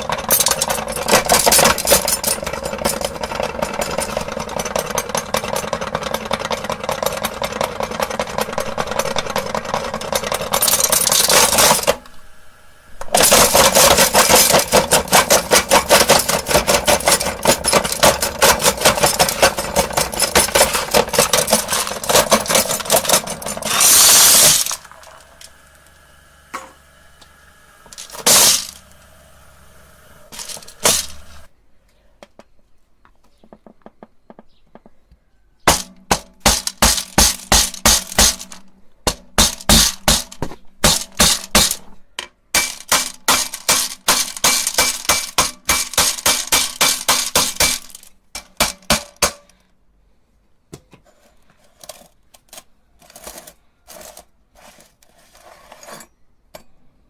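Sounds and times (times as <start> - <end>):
meat grinder motor: 0.0 - 31.5
marbles clattering and cracking: 13.1 - 26.0, 26.6 - 29.0, 30.2 - 31.5.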